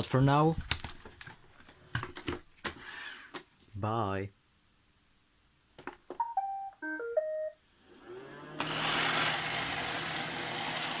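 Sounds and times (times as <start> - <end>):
electronic beep tune: 6.2 - 7.6
vacuum motors whirring: 7.7 - 11.0.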